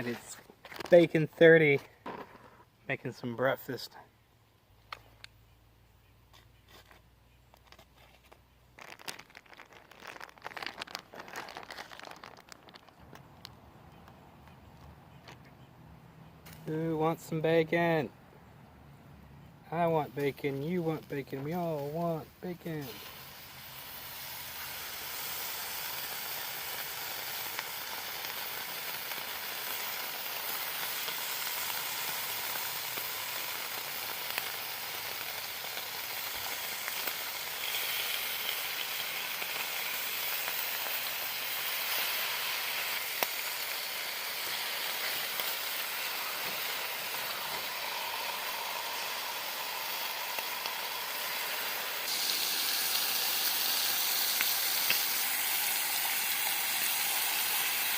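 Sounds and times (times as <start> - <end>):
bacon sizzling in a pan: 22.8 - 57.9.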